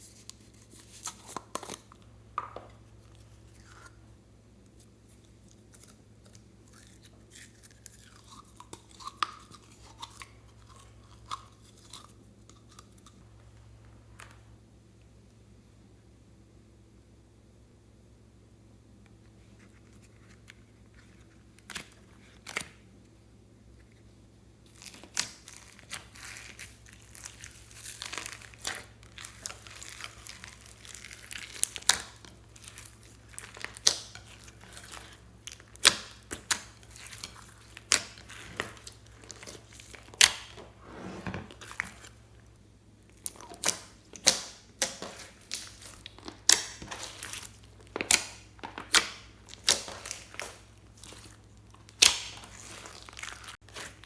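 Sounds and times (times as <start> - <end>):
slime being kneaded by hand: 24.6 - 54.0
slime popping: 24.7 - 40.6, 43.1 - 54.0.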